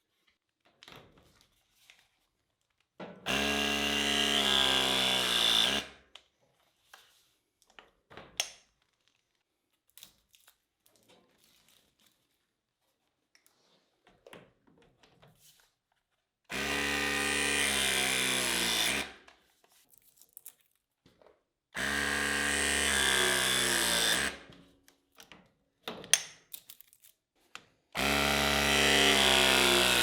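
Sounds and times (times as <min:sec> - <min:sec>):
pipe pressing tool motor: 0:03.3 - 0:05.9, 0:16.5 - 0:19.2, 0:21.8 - 0:24.5, 0:28.0 - 0:30.0.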